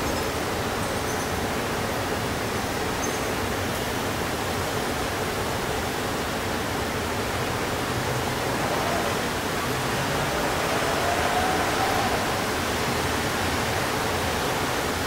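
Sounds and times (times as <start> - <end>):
distant traffic: 4.7 - 15.0
faint rising tone: 7.9 - 13.1.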